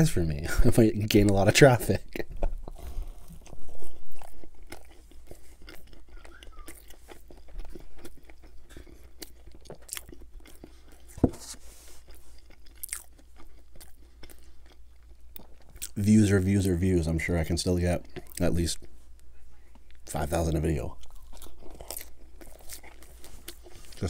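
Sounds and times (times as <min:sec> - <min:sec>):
crunching fried food: 0:01.0 - 0:19.0, 0:20.0 - 0:24.0
dull thump: 0:11.2 - 0:11.5.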